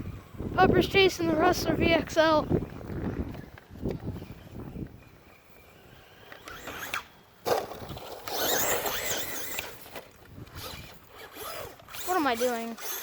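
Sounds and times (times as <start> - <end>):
electric motor whining: 5.8 - 7.2, 8.1 - 13.0
tyres scrabbling: 6.4 - 13.0.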